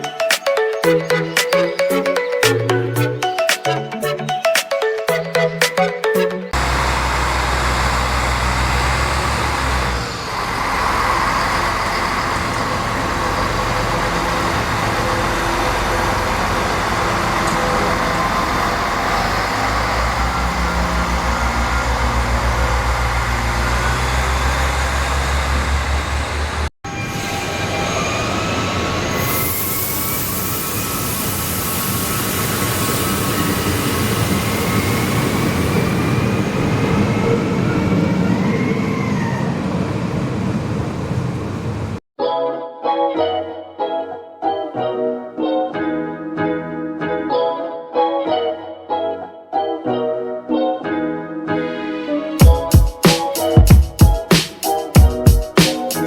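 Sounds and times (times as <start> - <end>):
loud high hiss: 29.2 - 35.2.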